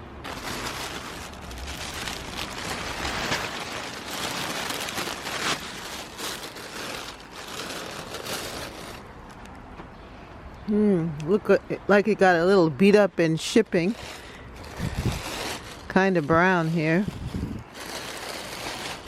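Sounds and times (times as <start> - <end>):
packaging rustling and crinkling: 0.0 - 9.6, 14.0 - 19.0.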